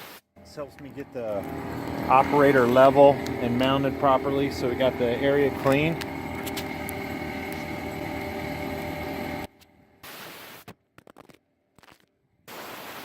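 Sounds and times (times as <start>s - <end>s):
compressor motor hum: 0.4s - 9.5s.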